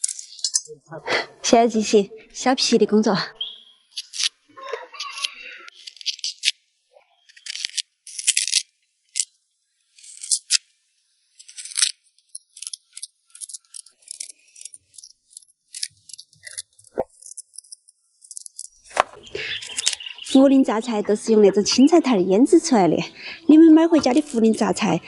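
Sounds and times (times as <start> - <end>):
blade scraping skin off tubers: 3.9 - 4.4, 11.4 - 20.4.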